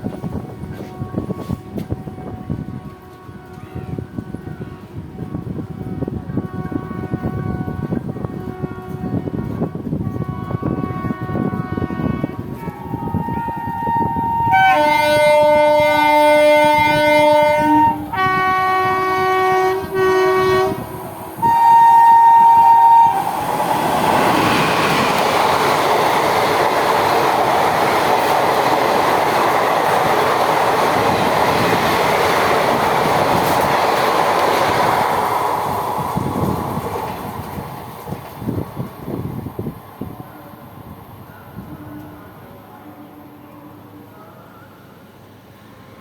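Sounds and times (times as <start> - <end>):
locomotive air horn blasts: 0.8 - 23.4
train wheels clattering on rails: 23.1 - 39.7.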